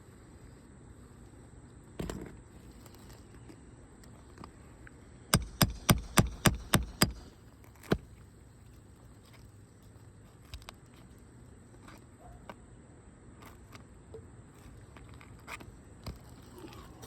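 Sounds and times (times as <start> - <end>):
low background hum: 0.0 - 17.0
roofing tools tapping and scraping: 5.4 - 8.2.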